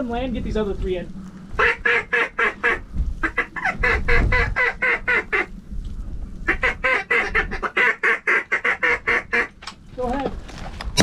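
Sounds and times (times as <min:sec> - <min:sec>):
wind rumbling on microphone: 0:00.0 - 0:11.0
duck quacking: 0:01.6 - 0:05.5, 0:06.5 - 0:09.5.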